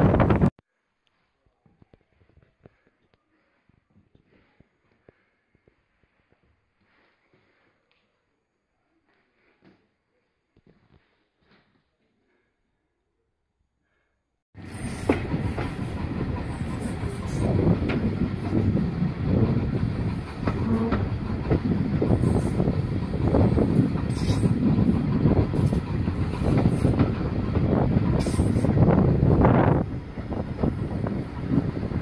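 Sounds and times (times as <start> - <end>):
rumble of wheels on rail: 0.0 - 0.5, 14.6 - 32.0.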